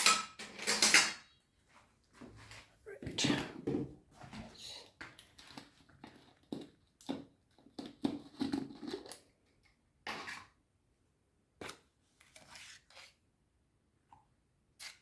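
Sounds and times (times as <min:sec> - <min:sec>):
kitchen utensils clicking and knocking: 0:00.0 - 0:01.3.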